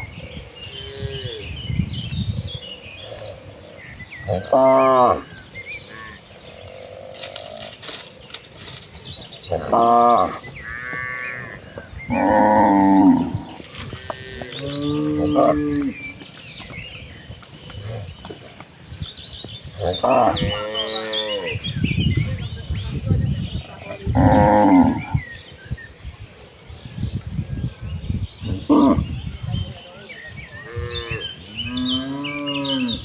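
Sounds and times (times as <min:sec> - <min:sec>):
cattle mooing: 0:09.5 - 0:16.1.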